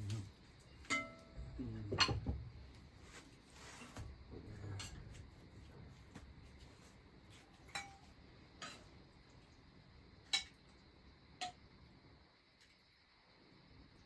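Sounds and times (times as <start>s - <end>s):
tableware clinking on metal dishes: 0.8s - 2.4s, 7.7s - 8.9s.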